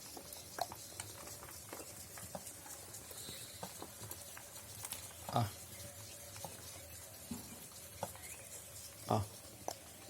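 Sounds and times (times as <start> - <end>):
peafowl pecking taps: 6.3 - 8.4.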